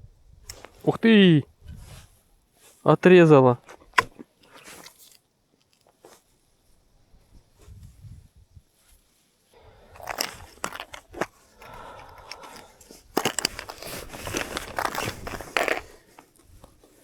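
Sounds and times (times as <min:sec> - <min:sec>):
crunching and rustling: 0:03.5 - 0:06.4, 0:08.7 - 0:17.0.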